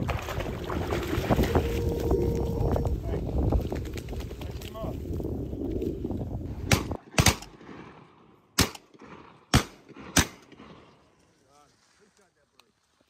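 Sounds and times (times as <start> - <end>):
wind rumbling on microphone: 0.0 - 7.0
shotgun shots: 6.7 - 10.9.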